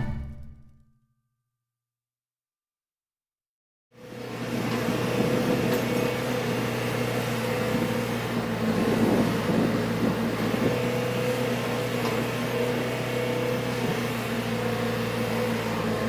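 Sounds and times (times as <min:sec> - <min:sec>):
loader engine humming steadily: 0:04.2 - 0:16.0.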